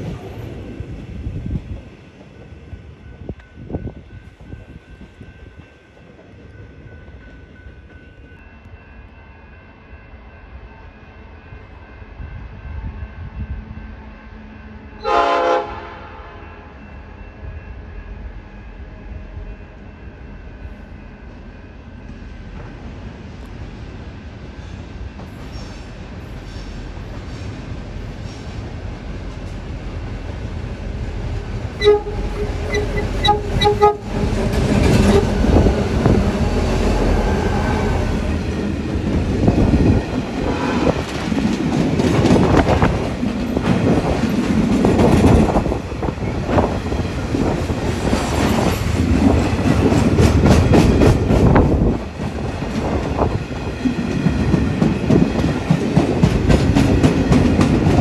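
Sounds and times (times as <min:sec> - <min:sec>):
train rumble: 0:00.0 - 0:58.0
train horn blasts: 0:15.0 - 0:16.8, 0:31.8 - 0:38.2.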